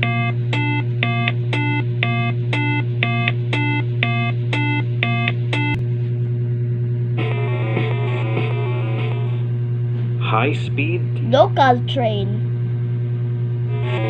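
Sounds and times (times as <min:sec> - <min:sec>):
two-pitch electronic beeps: 0:00.0 - 0:05.8
loud low hum: 0:00.0 - 0:14.0.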